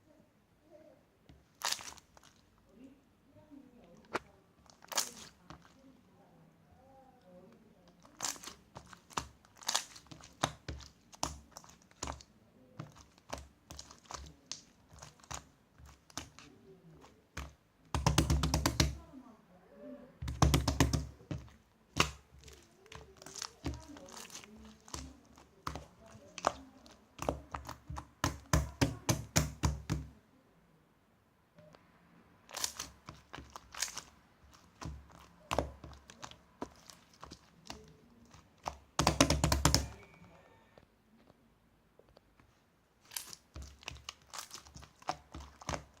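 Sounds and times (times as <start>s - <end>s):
sharp taps on hard objects: 17.4s - 19.0s, 20.2s - 26.6s, 27.2s - 30.1s, 38.6s - 40.0s.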